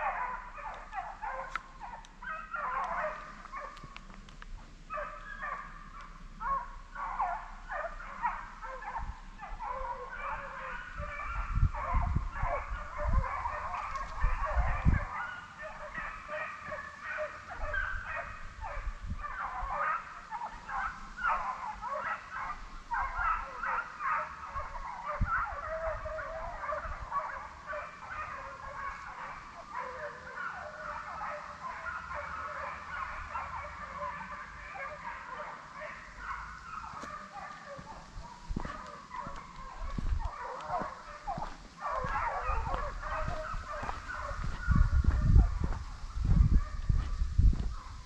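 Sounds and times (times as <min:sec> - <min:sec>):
hounds baying and yelping: 0:00.0 - 0:04.1, 0:04.9 - 0:48.0.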